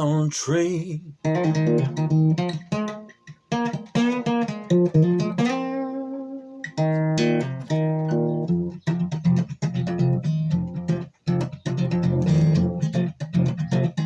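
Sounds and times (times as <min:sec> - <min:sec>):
blues guitar playing: 0:01.2 - 0:13.6.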